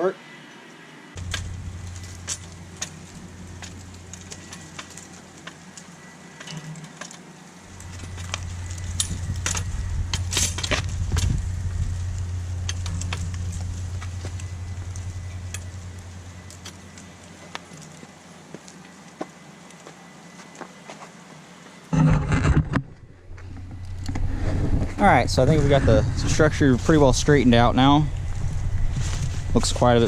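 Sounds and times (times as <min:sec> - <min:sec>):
metal clicks and clanks: 0:01.2 - 0:05.6, 0:06.4 - 0:17.9
low motor hum: 0:01.2 - 0:05.9, 0:07.6 - 0:18.4, 0:21.9 - 0:30.0.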